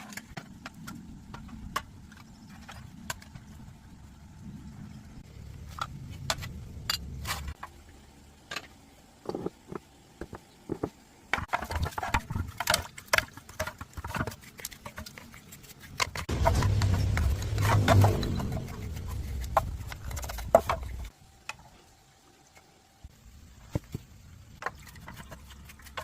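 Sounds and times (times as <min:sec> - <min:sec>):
low rumble: 0:16.3 - 0:21.1.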